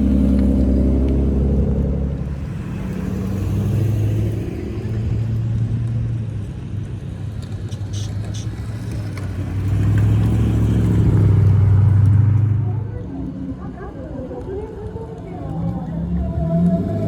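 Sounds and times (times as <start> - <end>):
car exhausts rumbling: 0.0 - 12.6.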